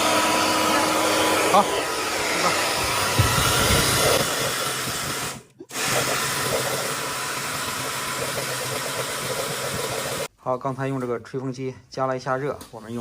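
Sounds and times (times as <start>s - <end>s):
hair dryer blowing: 0.0s - 10.3s.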